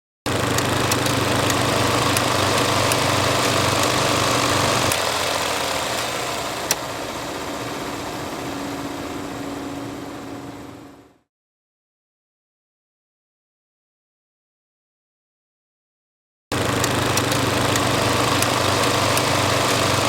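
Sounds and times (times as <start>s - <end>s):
film projector whirring: 0.3s - 11.2s, 16.5s - 20.0s
sharp click: 0.5s - 5.1s, 16.8s - 19.9s
faint ticking: 16.7s - 20.0s.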